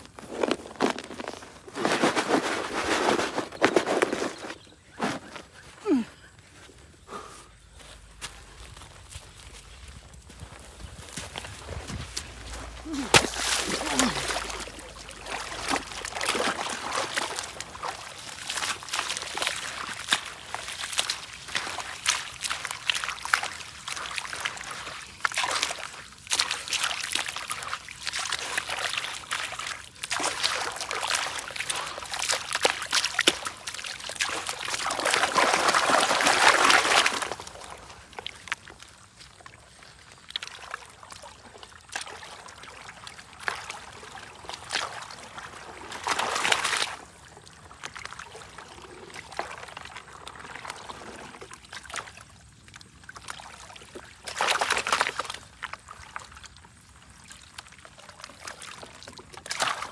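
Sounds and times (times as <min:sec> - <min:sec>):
gritty sand clicks: 0:00.0 - 0:05.8, 0:07.7 - 0:17.8.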